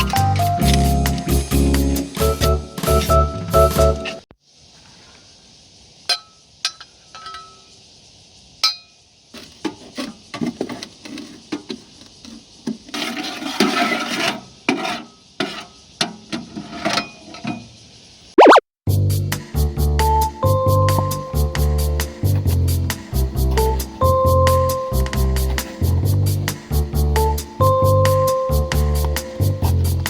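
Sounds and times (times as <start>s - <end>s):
metal tool clinking in stove: 6.1s - 7.6s
ash scraping: 22.2s - 30.0s.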